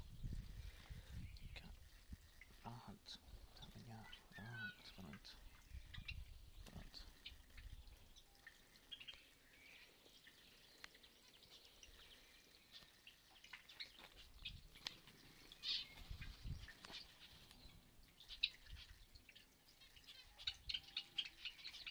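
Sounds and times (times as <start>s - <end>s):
cage birds chirping: 0.0s - 21.9s.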